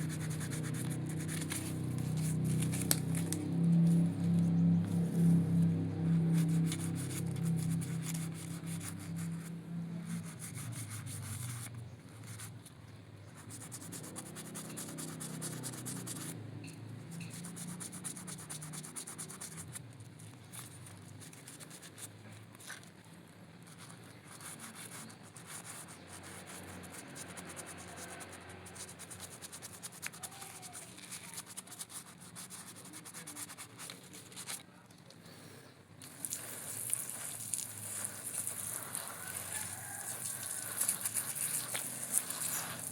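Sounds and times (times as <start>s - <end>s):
brush scrubbing with raspy hiss: 0.0s - 12.6s, 13.3s - 22.8s, 23.7s - 34.6s, 36.0s - 42.9s.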